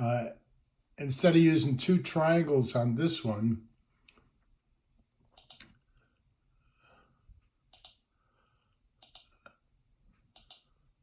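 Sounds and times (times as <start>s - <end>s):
computer mouse clicks: 5.3s - 5.8s, 7.7s - 8.0s, 9.0s - 9.6s, 10.3s - 10.8s.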